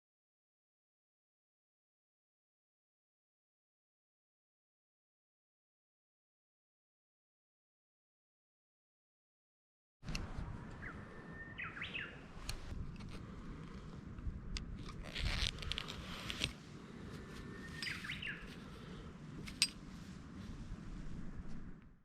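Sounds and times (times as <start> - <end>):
bird whistling call: 10.8 - 12.2, 17.5 - 18.5
brief rustle: 14.8 - 18.7.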